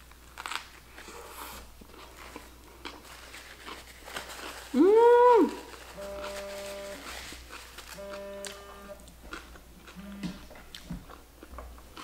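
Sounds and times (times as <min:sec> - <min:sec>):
person humming mmm: 0:04.7 - 0:07.0
quiet chewing: 0:05.7 - 0:12.0.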